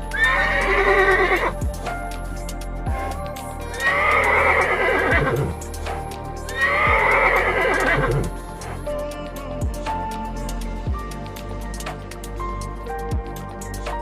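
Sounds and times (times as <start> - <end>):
music with low beat: 0.0 - 14.0
horse whinnying: 0.2 - 1.6, 3.8 - 5.6, 6.5 - 8.3.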